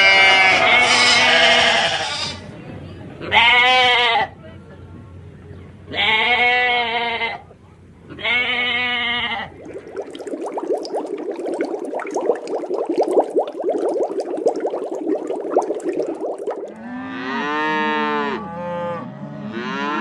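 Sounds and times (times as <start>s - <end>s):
sheep bleating: 0.0s - 2.4s.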